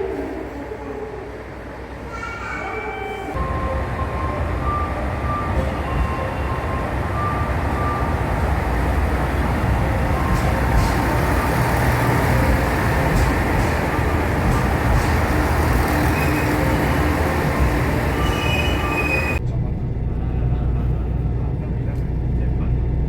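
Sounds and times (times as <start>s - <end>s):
moving vehicle rumbling: 3.4s - 23.0s
short high squeals: 16.1s - 19.4s.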